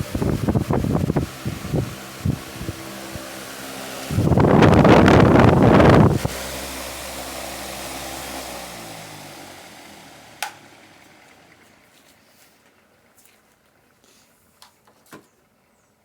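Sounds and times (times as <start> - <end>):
loud rushing machine noise: 0.0 - 11.1
motor humming spinning down: 0.0 - 12.0.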